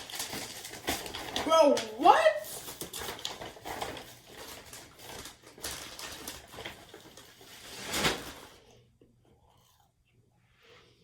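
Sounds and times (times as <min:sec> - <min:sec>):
food packaging rustling: 0:00.0 - 0:08.8.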